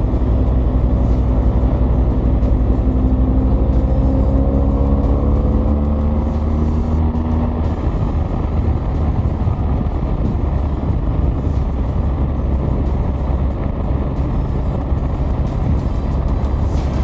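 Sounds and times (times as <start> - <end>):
motorcycle engine droning: 0.0 - 17.0
wind and road rush: 0.0 - 17.0.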